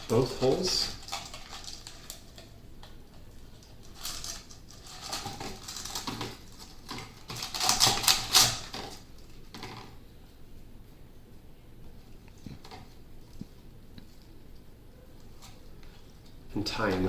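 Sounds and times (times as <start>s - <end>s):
plastic bottle crackling and clicking: 0.9s - 10.0s.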